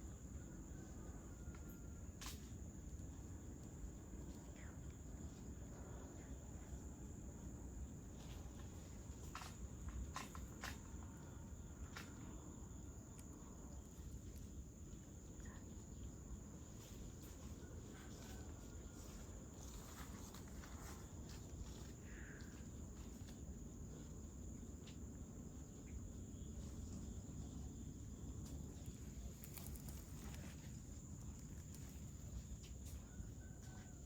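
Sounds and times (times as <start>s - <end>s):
high-pitched insect chorus: 0.0s - 34.0s.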